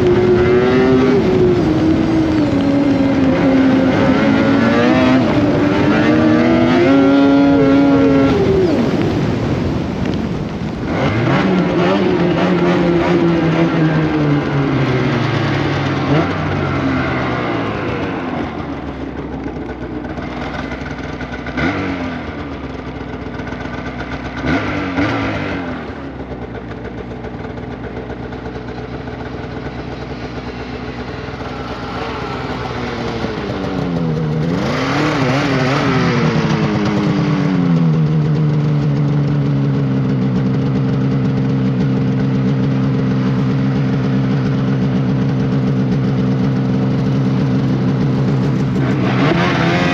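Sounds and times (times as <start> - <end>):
snowmobile engine revving: 0.0 - 49.9.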